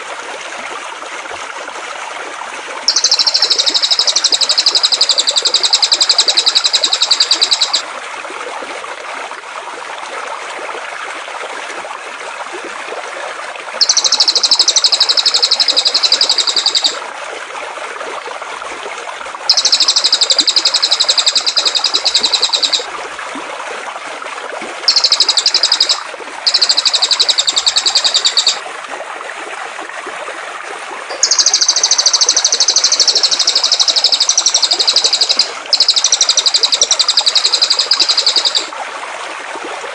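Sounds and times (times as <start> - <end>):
flowing water rushing: 0.0 - 39.9
songbird trilling: 2.9 - 7.8, 13.8 - 17.0, 19.5 - 22.9, 24.9 - 28.6, 31.1 - 38.7.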